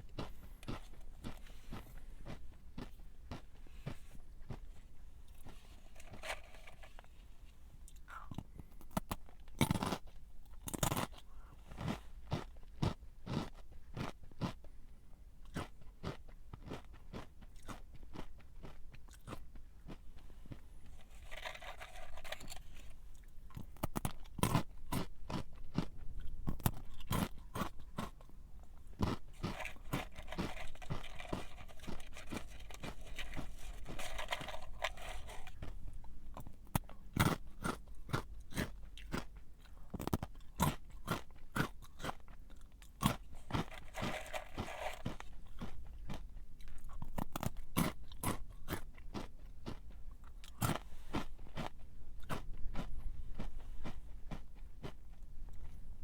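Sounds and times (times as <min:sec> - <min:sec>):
crunching and chewing snack: 0:00.0 - 0:56.0.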